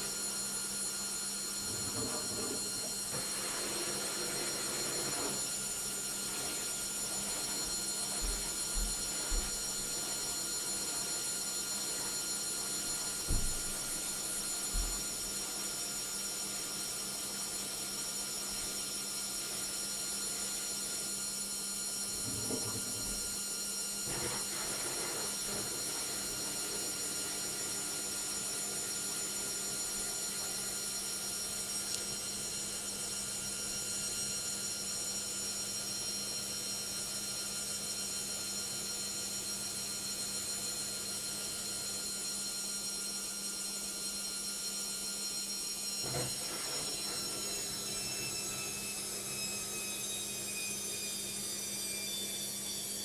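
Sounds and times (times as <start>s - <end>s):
washing machine motor whine: 0.0s - 53.0s.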